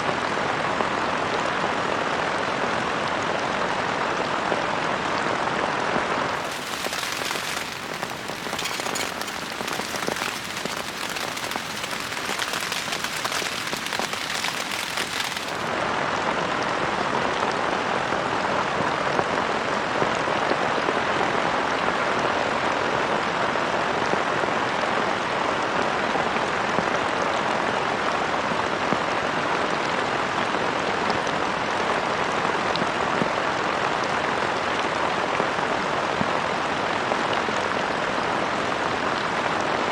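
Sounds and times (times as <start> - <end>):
heavy rain falling: 6.3 - 15.8.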